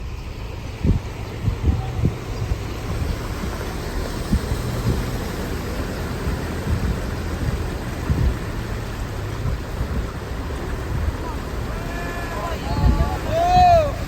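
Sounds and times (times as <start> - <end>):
heavy rain falling: 0.0 - 14.0
wind buffeting microphone: 0.0 - 14.0.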